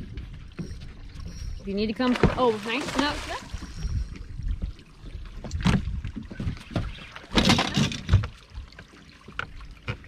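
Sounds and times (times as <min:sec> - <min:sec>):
knocks and thumps on boat: 0:00.0 - 0:03.6, 0:04.6 - 0:08.5.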